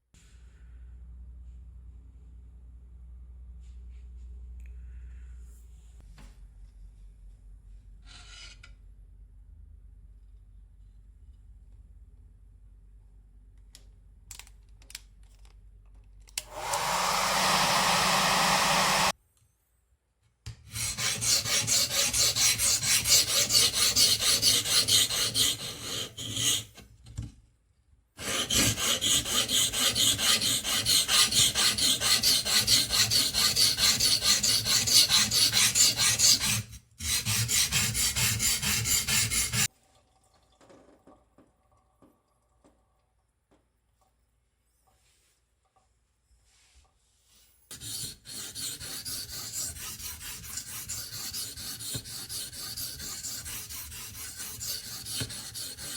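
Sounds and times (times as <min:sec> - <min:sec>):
blade rubbed on abrasive: 0:16.9 - 0:19.1, 0:20.8 - 0:26.7, 0:28.2 - 0:39.7, 0:47.7 - 0:55.9.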